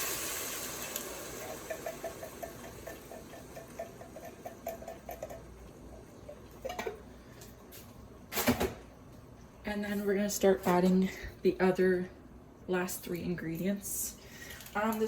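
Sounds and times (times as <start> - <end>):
chicken sizzling in a pot: 0.0 - 6.6.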